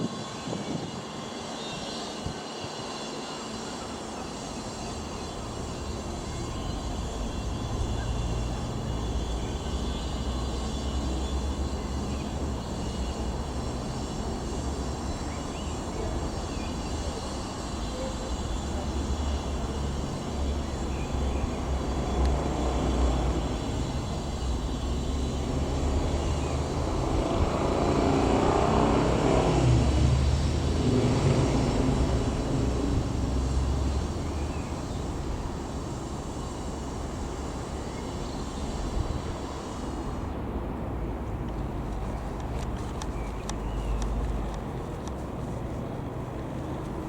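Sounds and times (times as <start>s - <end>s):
wind rumble on microphone: 0.0s - 2.8s, 21.0s - 36.3s
light aircraft flying past: 0.0s - 47.0s.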